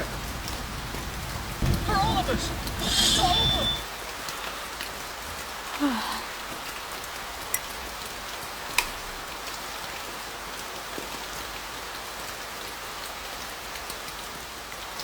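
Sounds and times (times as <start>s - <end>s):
heavy rain on a car: 0.0s - 15.0s.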